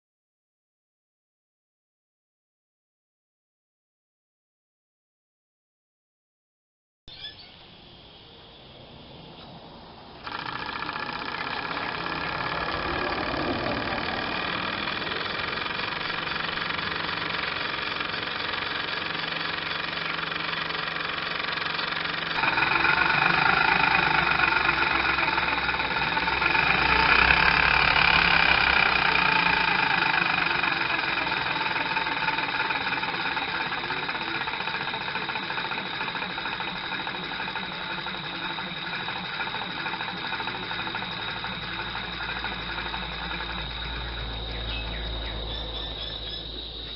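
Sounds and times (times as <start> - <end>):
model steam engine running: 10.1 - 46.9.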